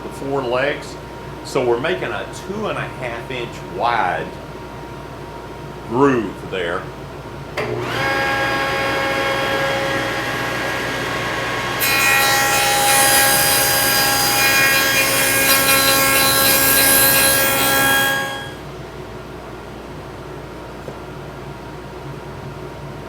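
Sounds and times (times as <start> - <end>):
saw cutting wood: 7.6 - 18.6
table saw whining: 7.6 - 18.6.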